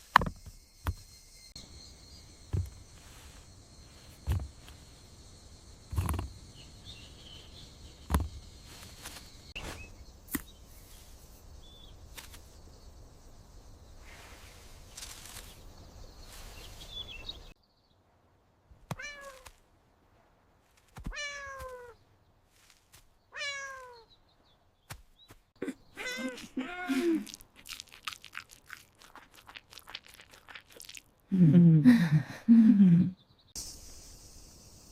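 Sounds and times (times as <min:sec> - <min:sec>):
high insect tone: 0:00.0 - 0:17.6, 0:33.5 - 0:34.9
cat meowing: 0:19.0 - 0:19.4, 0:21.1 - 0:22.0, 0:23.4 - 0:24.1.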